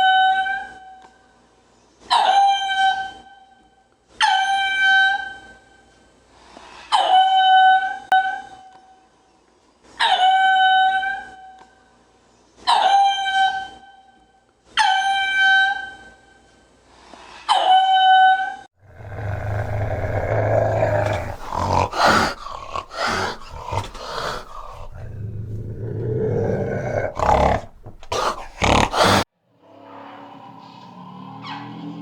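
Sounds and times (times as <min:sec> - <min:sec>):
low rough animal rumbling: 0:18.8 - 0:29.2.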